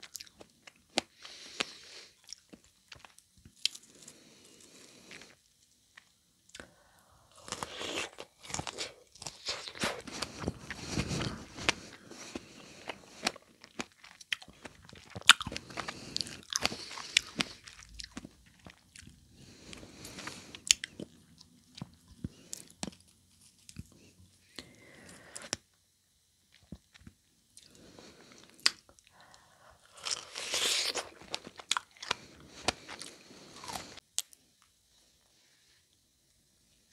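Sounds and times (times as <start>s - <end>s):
person eating with wet bites: 7.3s - 23.0s, 28.4s - 34.4s
breathy noise: 19.3s - 21.1s.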